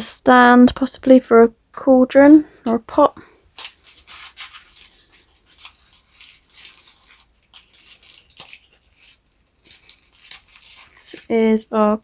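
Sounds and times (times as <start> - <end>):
packaging rustling and crinkling: 3.4 - 11.7.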